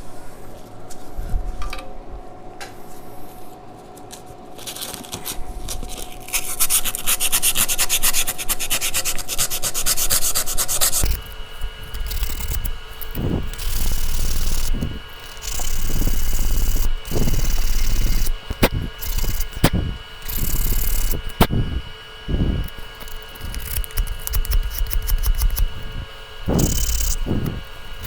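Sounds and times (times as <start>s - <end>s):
sanding metal scraping: 6.5s - 28.0s
sharp clicks: 11.0s - 28.0s.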